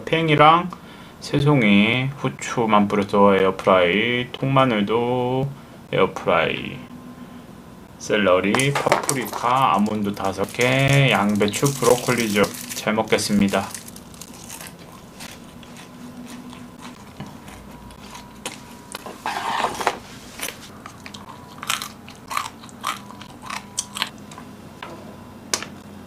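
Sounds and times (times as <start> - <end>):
biting and chewing food: 8.6 - 24.6.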